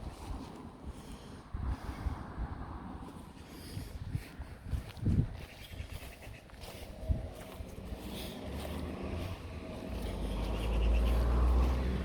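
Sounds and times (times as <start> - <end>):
footsteps on outdoor track: 2.9 - 12.0.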